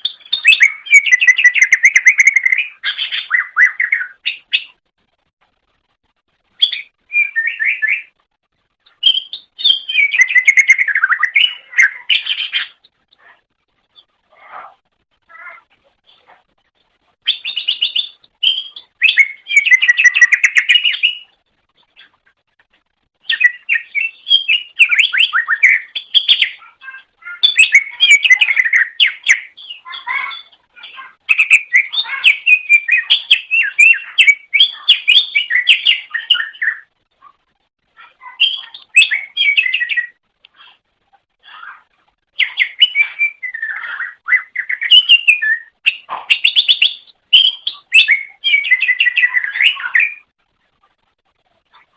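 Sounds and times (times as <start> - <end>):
bird chirping and whistling: 0.0 - 4.7, 6.6 - 8.1, 9.0 - 12.8, 17.2 - 21.4, 23.2 - 26.6, 27.2 - 30.6, 31.3 - 36.9, 38.3 - 40.2, 42.4 - 50.2.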